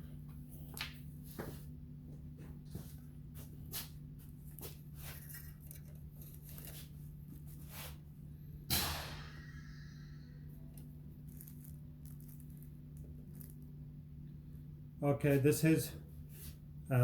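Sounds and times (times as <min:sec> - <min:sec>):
steady low hum: 0:00.0 - 0:17.0
small clicks and rustles: 0:10.8 - 0:13.7.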